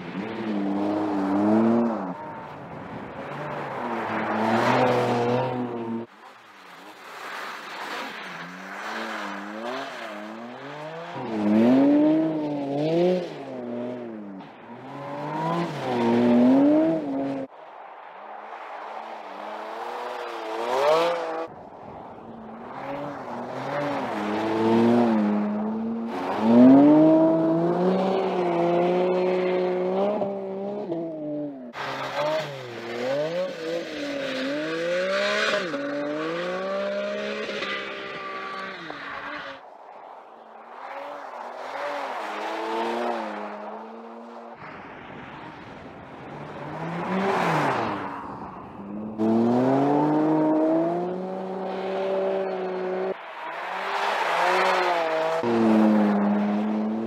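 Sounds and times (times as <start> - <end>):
car engine revving: 48.8 - 57.0.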